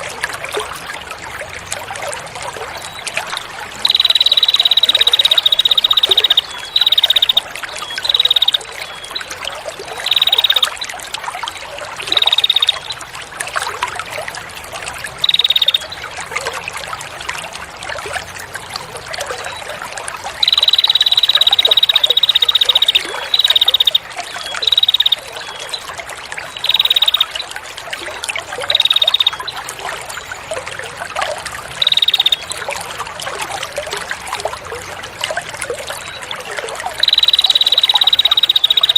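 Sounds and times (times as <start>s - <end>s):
trickling water: 0.0s - 38.9s
songbird buzzing trill: 3.8s - 8.7s, 10.0s - 10.8s, 12.1s - 13.0s, 15.2s - 15.9s, 20.4s - 24.0s, 24.6s - 25.3s, 26.6s - 27.4s, 28.7s - 29.5s, 31.8s - 32.5s, 37.0s - 38.9s.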